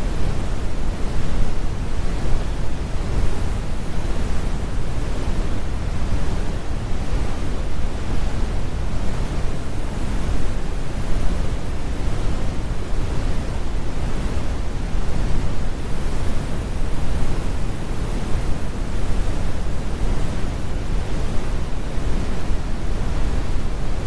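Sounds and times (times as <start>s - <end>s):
synthetic brown noise rumble: 0.0s - 24.0s.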